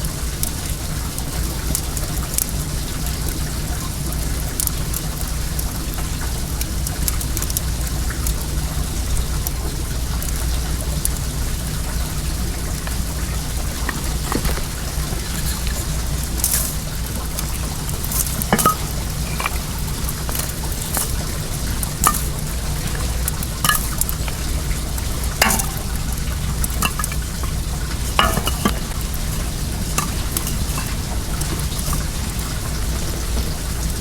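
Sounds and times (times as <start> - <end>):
low steady hum: 12.6 - 34.0
bonfire crackling and popping: 12.7 - 34.0
flowing water rushing: 12.7 - 34.0.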